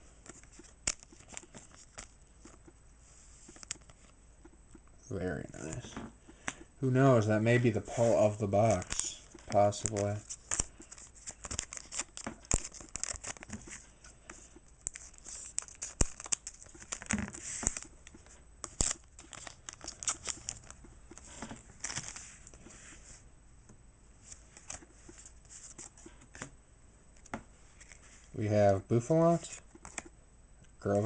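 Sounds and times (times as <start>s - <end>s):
cards being handled: 0.1s - 4.2s, 5.6s - 23.0s, 24.2s - 26.5s, 27.2s - 28.3s, 29.4s - 30.1s
foil wrapper crinkling and tearing: 8.3s - 13.8s, 14.8s - 22.3s.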